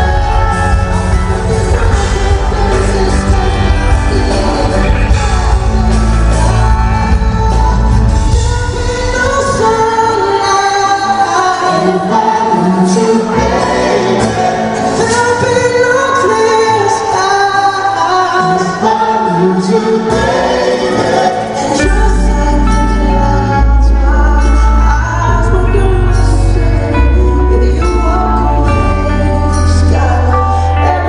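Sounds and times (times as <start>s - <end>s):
heavy bass: 0.0s - 10.2s
live band playing pop ballad: 0.0s - 31.0s
person singing: 0.0s - 31.0s.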